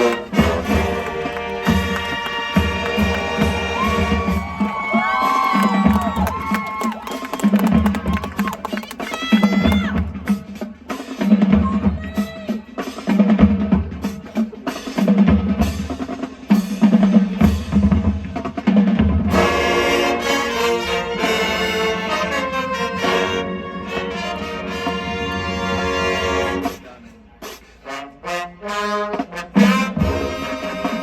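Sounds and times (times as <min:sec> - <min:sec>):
brass section chords: 0:00.0 - 0:04.4, 0:19.2 - 0:26.9, 0:27.8 - 0:31.0.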